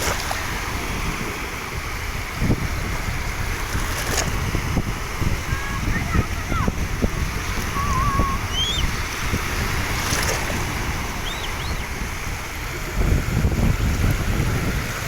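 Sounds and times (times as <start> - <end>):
water noise: 0.0 - 15.0
wind rumble on microphone: 0.0 - 15.0
short high whistles: 8.1 - 8.9, 11.2 - 11.8.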